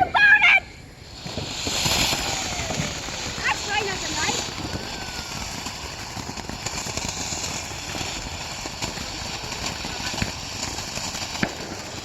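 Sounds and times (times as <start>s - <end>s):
firework fountain hissing: 0.0s - 12.0s
sharp crackles: 0.9s - 12.0s.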